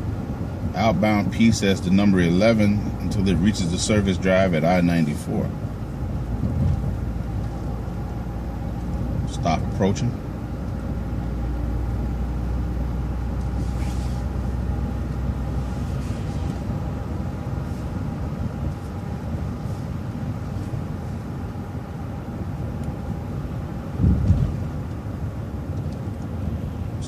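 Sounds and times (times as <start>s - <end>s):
bus engine and road rumble: 0.0s - 27.0s
low thump: 24.0s - 24.6s.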